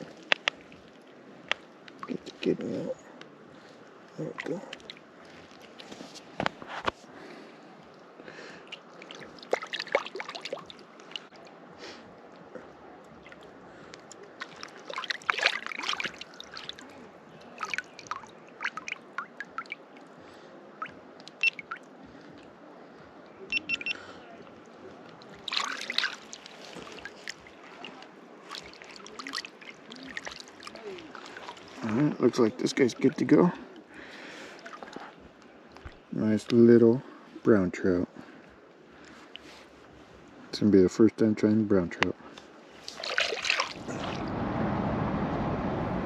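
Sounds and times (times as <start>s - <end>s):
water splashing and trickling: 0.0s - 3.0s, 3.6s - 6.4s, 7.3s - 22.6s, 24.5s - 36.6s, 42.7s - 44.4s
low wash of water: 7.2s - 23.2s, 24.5s - 36.1s, 42.7s - 46.0s.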